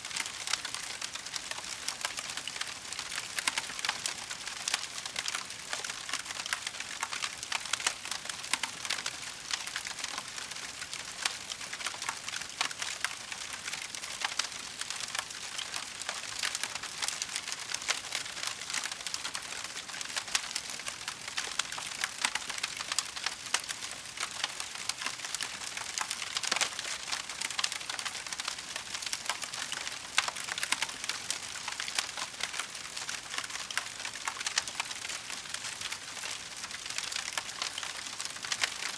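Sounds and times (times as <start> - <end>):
wood fire crackling: 11.8 - 38.9.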